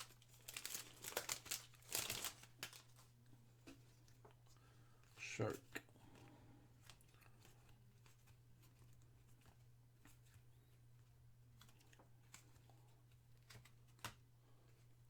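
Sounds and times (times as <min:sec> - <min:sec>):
trading cards clicking and rustling: 0:00.0 - 0:03.0.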